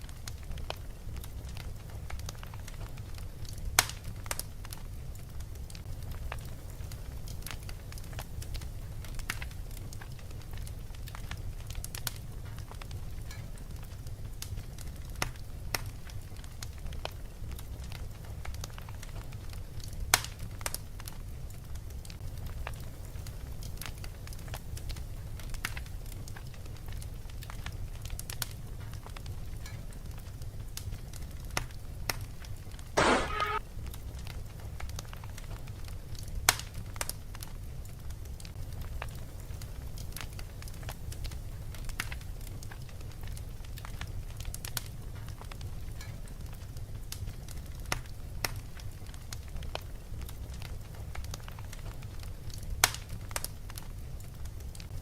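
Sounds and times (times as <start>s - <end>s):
fireplace crackling: 0.0s - 55.0s
buzzing burst: 33.0s - 33.6s.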